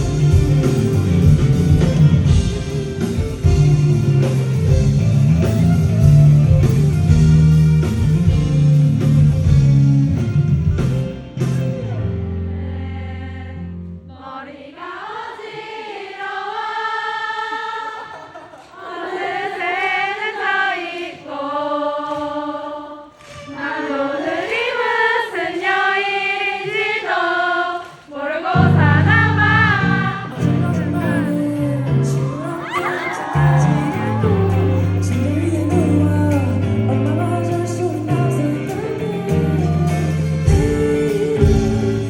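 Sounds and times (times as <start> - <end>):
bass and low instruments: 0.0 - 14.0, 33.3 - 42.0
concert crowd singing: 12.3 - 42.0.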